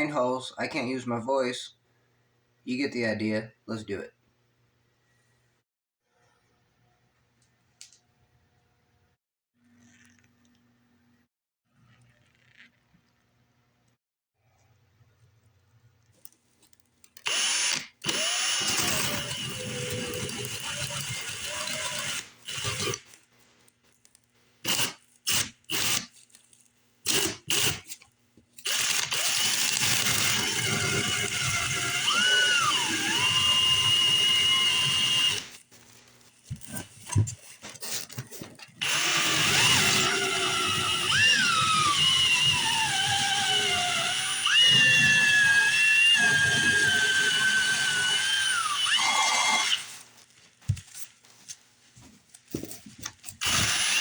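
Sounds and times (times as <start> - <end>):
electric drill whining: 17.2 - 23.0, 24.7 - 26.0, 27.1 - 27.8, 28.6 - 35.6, 38.8 - 50.0, 53.4 - 54.0.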